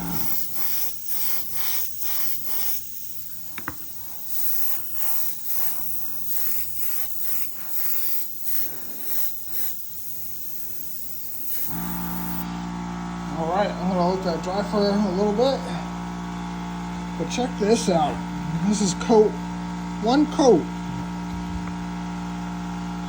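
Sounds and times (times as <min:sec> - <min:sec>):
airbrush spraying hisses: 0:00.0 - 0:12.5.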